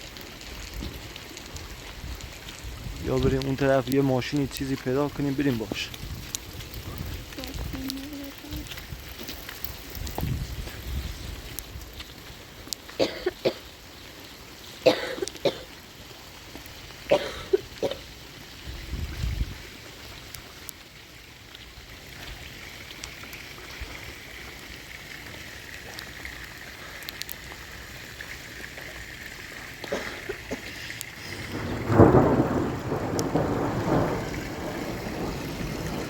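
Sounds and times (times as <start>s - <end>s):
steady rain: 0.0s - 36.0s
person coughing: 13.0s - 13.6s, 14.9s - 15.7s, 17.1s - 18.0s, 29.8s - 30.9s.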